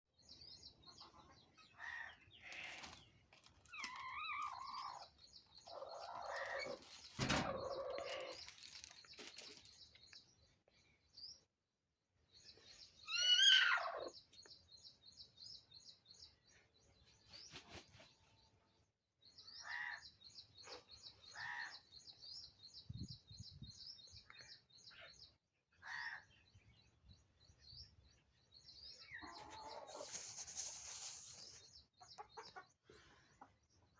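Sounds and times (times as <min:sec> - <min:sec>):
birds chirping: 0:00.2 - 0:11.5, 0:19.2 - 0:33.9.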